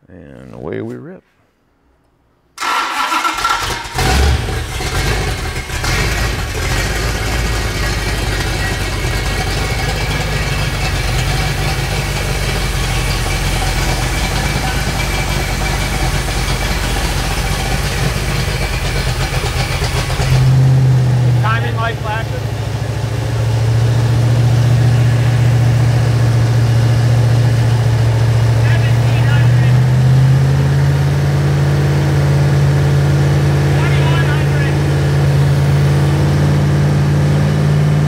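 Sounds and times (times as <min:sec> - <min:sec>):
engine running steadily: 0:03.6 - 0:38.0.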